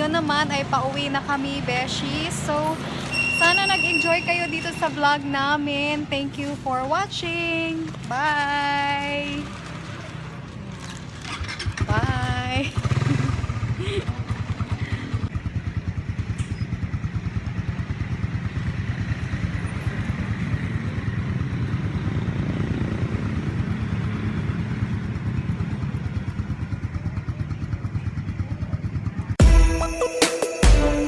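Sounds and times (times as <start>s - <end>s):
motorcycle engine running: 6.8s - 29.5s.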